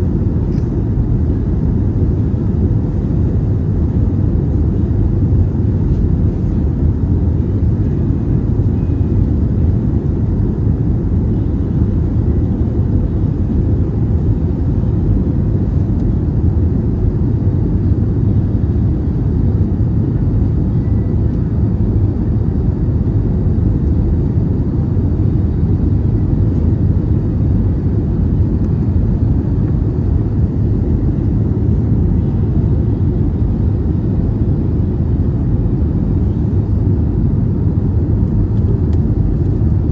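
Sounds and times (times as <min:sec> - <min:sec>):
aircraft engines rumbling: 0:00.0 - 0:39.9
airflow over fuselage: 0:00.0 - 0:39.9
faint steady hum: 0:00.0 - 0:39.9.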